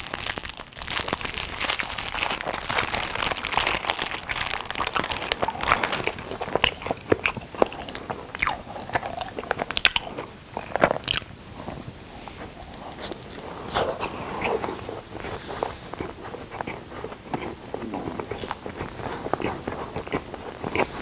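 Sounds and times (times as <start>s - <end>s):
crisp crunching bites: 0.0s - 11.3s
wet mouth sounds: 1.5s - 21.0s.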